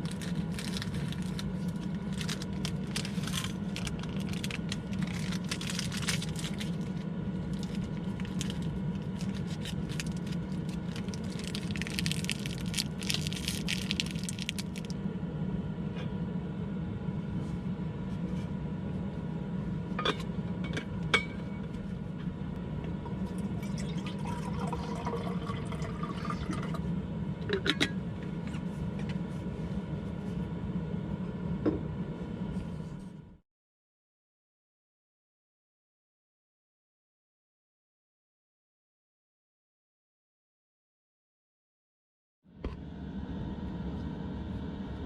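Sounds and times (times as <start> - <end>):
steady low hum: 0.0 - 33.4, 42.5 - 45.0.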